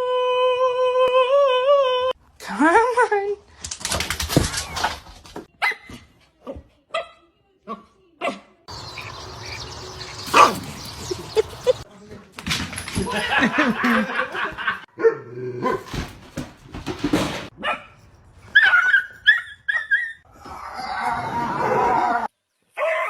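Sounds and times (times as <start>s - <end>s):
dogs barking and yelping: 8.7s - 11.8s, 17.6s - 22.2s, 22.8s - 23.0s.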